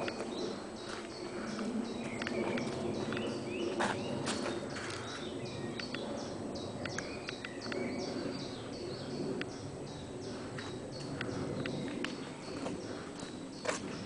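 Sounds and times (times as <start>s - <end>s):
birds chirping: 0.0s - 14.0s
steady outdoor background noise: 0.0s - 14.0s
sharp clicks: 2.2s - 3.3s, 6.8s - 7.9s.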